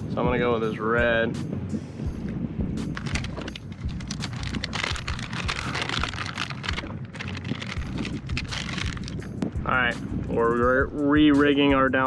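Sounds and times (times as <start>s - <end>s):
wind rumbling on microphone: 0.0s - 12.0s
fishing tackle clicking and rattling: 2.9s - 9.5s.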